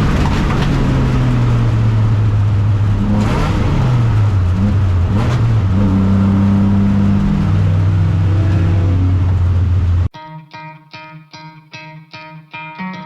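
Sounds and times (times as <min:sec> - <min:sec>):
race car engine running: 0:00.0 - 0:10.1.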